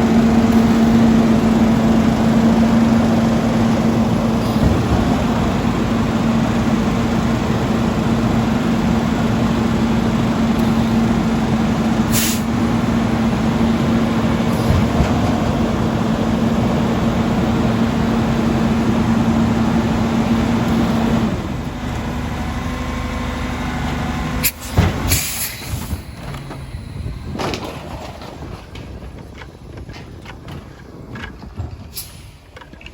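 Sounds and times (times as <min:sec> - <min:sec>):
truck diesel engine running: 0:00.0 - 0:32.9
air brake hisses: 0:12.1 - 0:12.5, 0:24.4 - 0:26.1.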